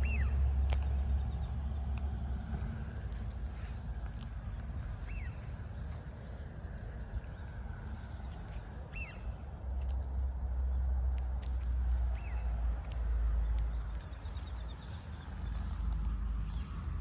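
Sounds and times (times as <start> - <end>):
bird chirping: 7.9 - 9.4.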